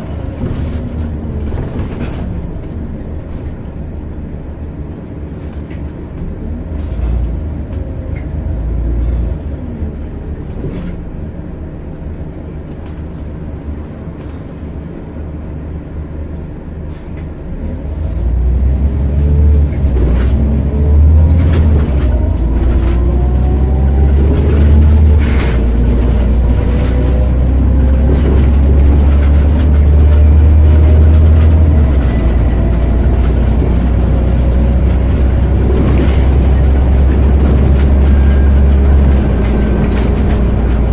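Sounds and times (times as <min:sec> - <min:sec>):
bus body rattles and clicks: 0:00.0 - 0:40.9
bus diesel engine accelerating: 0:00.0 - 0:40.9
rising engine whine: 0:17.6 - 0:40.9.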